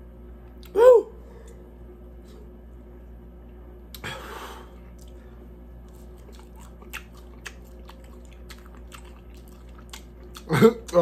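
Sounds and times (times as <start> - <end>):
person chewing crunchy food: 4.8 - 11.0.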